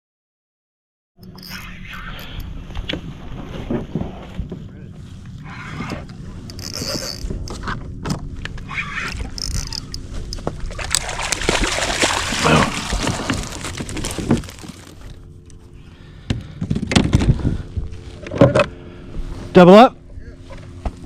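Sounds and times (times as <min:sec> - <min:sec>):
water splashing and sloshing: 0:05.3 - 0:15.8.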